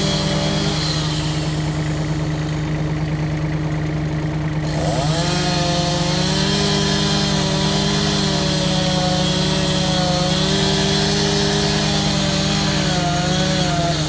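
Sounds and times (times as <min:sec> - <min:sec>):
chainsaw engine running: 0:00.0 - 0:14.0.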